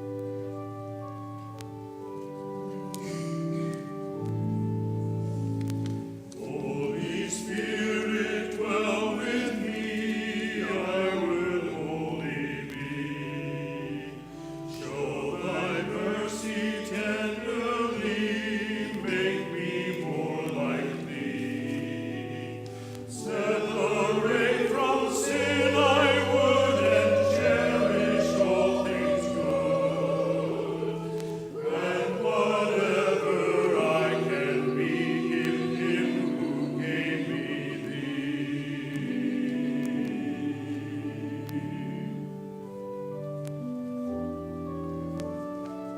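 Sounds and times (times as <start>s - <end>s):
church choir singing: 0.0s - 45.9s
instrument holding steady chords: 0.0s - 45.9s.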